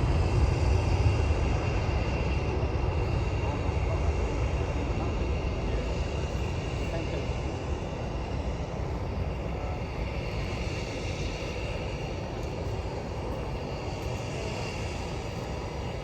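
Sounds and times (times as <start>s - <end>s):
jet engines rumbling with hiss: 0.0s - 16.0s.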